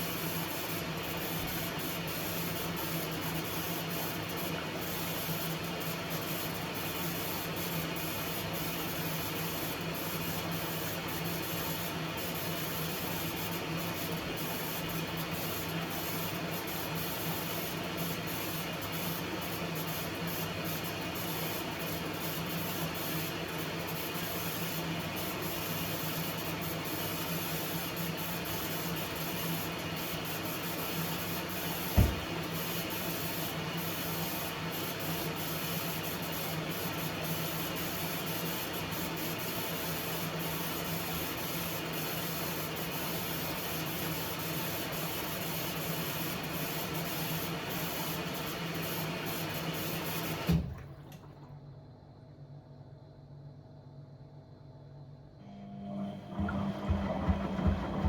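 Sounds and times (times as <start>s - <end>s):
single knock: 32.0s - 32.3s
machine motor humming: 32.0s - 32.5s, 55.4s - 58.0s.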